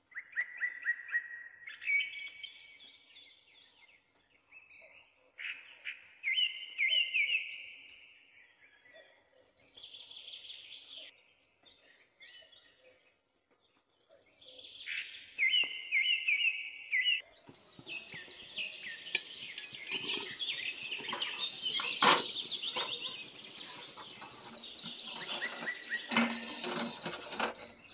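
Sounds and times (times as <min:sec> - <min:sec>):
small birds chirping: 0:00.2 - 0:27.9
crackling hiss: 0:18.0 - 0:27.6.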